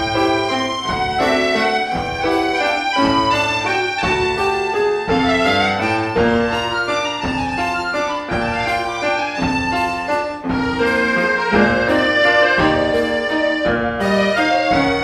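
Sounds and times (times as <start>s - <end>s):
chamber ensemble playing classical music: 0.0s - 15.0s.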